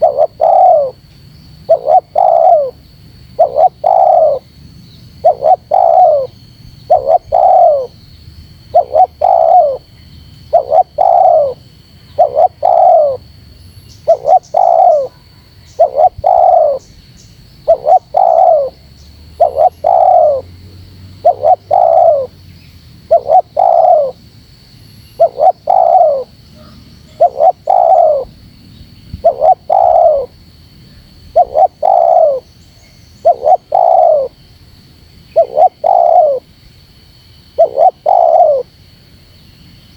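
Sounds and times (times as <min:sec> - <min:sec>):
dove cooing: 0:00.0 - 0:04.5, 0:05.2 - 0:08.0, 0:08.7 - 0:09.9, 0:10.5 - 0:13.4, 0:14.0 - 0:16.9, 0:17.6 - 0:22.4, 0:23.0 - 0:24.2, 0:25.2 - 0:28.4, 0:29.1 - 0:30.4, 0:31.0 - 0:32.5, 0:33.2 - 0:34.5, 0:35.3 - 0:36.5, 0:37.5 - 0:38.7.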